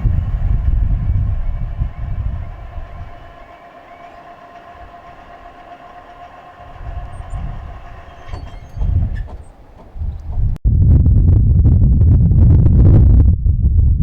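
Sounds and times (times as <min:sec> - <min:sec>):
train running on rails: 0:00.0 - 0:10.6.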